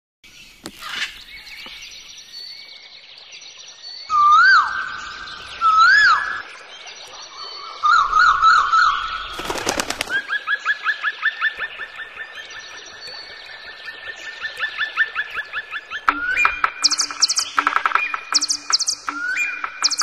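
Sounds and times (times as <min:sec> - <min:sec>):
loud whistled bird calls: 0:03.6 - 0:13.3, 0:14.2 - 0:20.0
birds whistling: 0:04.0 - 0:13.4, 0:14.1 - 0:20.0
wavering run of bird notes: 0:04.1 - 0:20.0.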